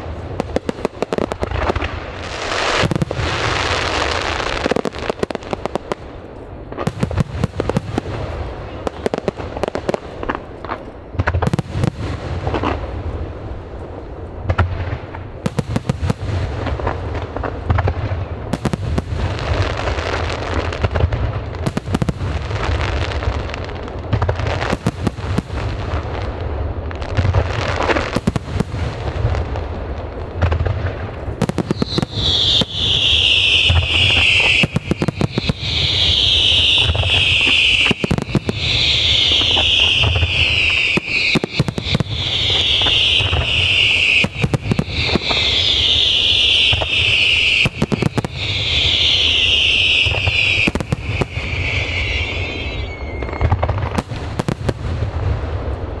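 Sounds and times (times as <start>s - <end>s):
fireworks booming and crackling: 0.0s - 56.0s
high whistles falling in pitch: 31.6s - 53.6s.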